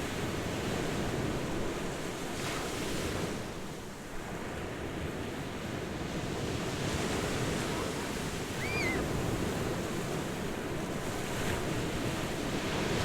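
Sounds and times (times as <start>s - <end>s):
ocean waves washing ashore: 4.7s - 13.0s.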